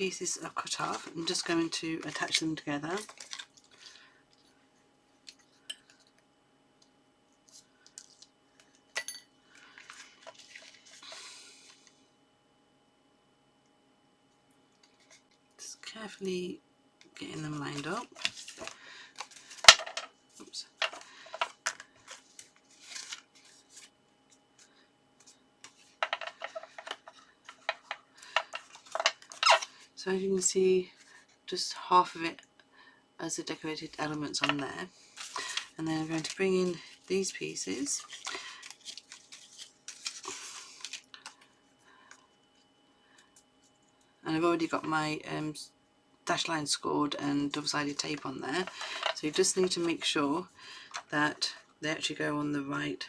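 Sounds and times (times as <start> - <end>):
paper crinkles: 0.7 - 3.9, 9.7 - 11.9, 17.8 - 19.8, 20.4 - 29.8, 35.2 - 41.5
card rustling: 9.8 - 11.9, 17.5 - 24.0, 24.6 - 29.8, 34.4 - 41.5.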